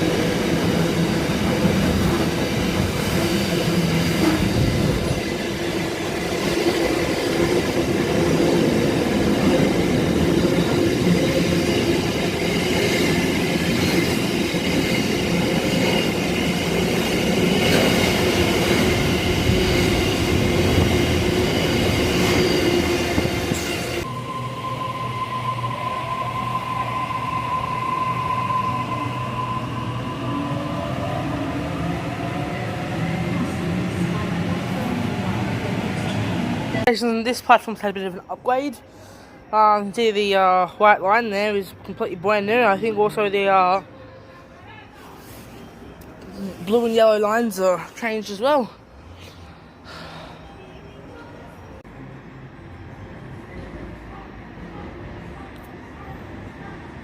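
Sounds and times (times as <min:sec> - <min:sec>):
train whine with rising tones: 0:00.0 - 0:36.9
train wheels squealing: 0:09.5 - 0:31.1.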